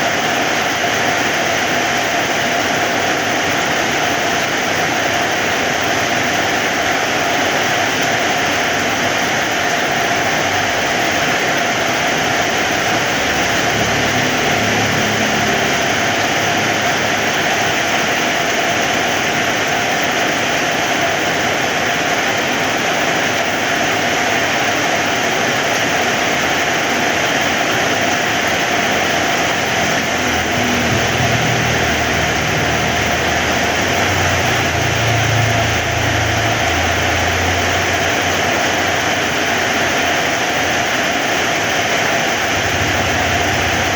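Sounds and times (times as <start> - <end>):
heavy rain hissing: 0.0 - 43.9
low rumble: 29.2 - 38.2.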